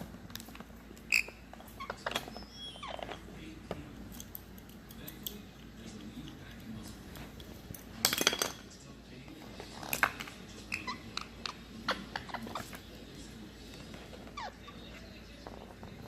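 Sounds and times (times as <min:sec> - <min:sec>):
parrot squeaks and chirps: 0:01.1 - 0:03.3, 0:10.6 - 0:12.7, 0:14.1 - 0:15.0.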